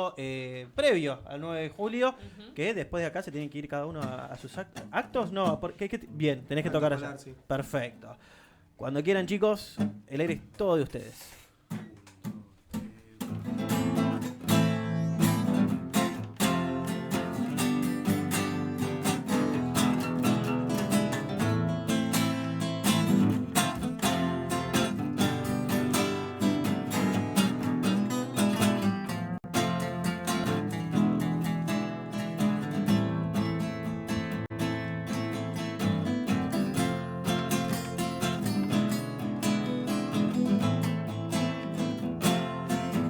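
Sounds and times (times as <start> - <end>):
acoustic guitar strumming: 9.8 - 10.1, 11.7 - 43.0.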